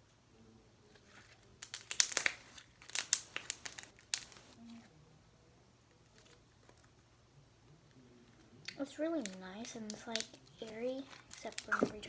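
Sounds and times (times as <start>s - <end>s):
slime crackling and clicking: 1.6s - 4.5s, 8.6s - 12.0s.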